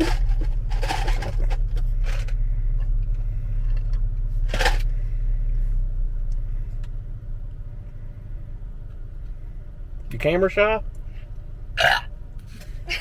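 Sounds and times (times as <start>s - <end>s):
scraping rustling handling noises: 0.0s - 2.4s
car cabin rumble: 0.0s - 13.0s.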